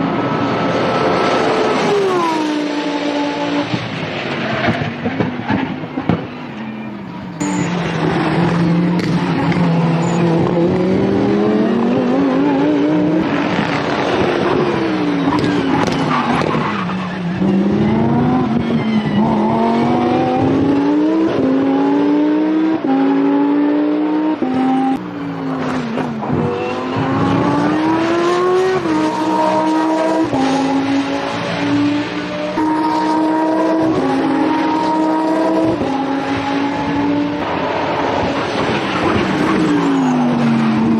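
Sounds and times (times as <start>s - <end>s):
race car engine at full throttle: 0.0s - 40.9s.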